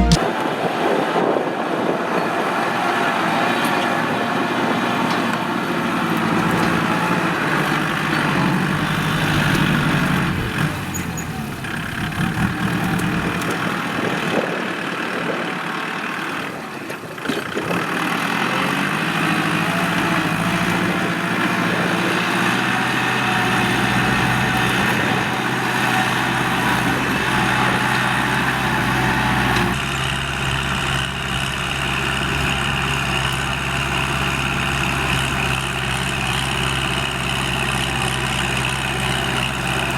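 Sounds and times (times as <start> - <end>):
tractor diesel engine running: 0.0 - 0.2, 1.6 - 39.9.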